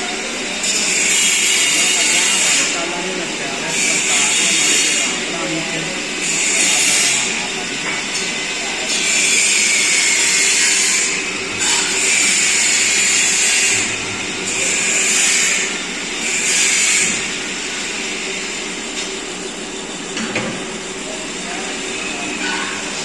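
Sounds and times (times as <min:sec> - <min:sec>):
metalworking machine humming: 0:00.0 - 0:23.0.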